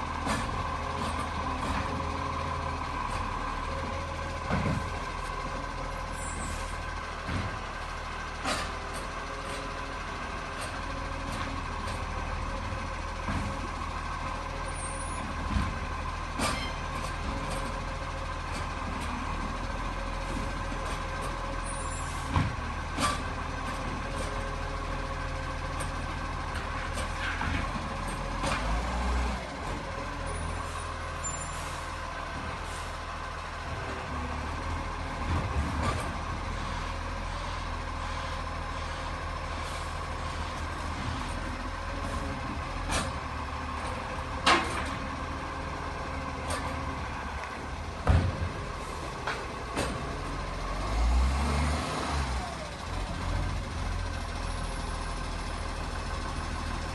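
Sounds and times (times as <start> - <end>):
garbage truck running: 0.0 - 56.9
sharp knocks and clanks: 4.4 - 5.0, 48.0 - 48.6.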